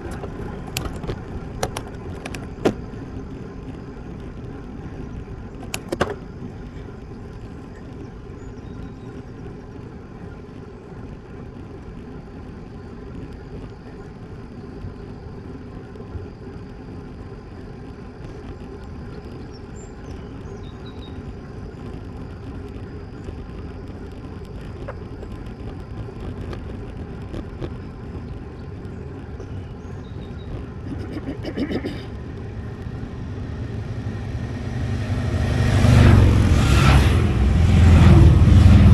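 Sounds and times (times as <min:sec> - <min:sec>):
rattle of clicks: 0:00.0 - 0:02.9
tyres rumbling on asphalt: 0:00.0 - 0:38.9.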